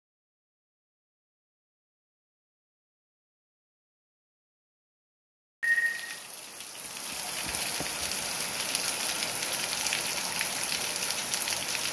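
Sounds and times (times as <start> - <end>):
brief high tone: 5.6 - 6.3
heavy rain pouring: 5.9 - 11.9.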